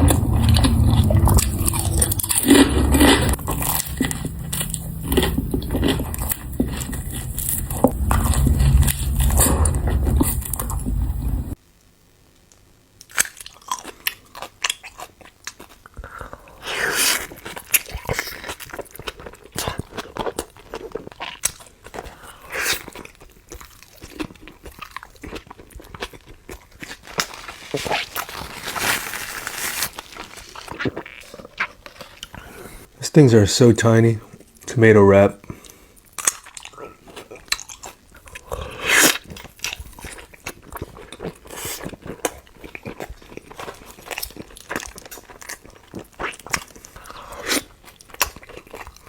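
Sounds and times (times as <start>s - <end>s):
crunchy chewing of food: 0.0s - 11.6s, 13.0s - 32.9s, 35.4s - 49.0s
loud sound with low hum: 0.0s - 11.6s.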